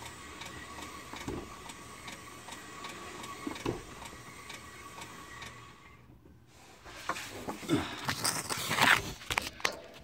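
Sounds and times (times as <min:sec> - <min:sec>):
car drivetrain clicking: 0:00.0 - 0:05.7.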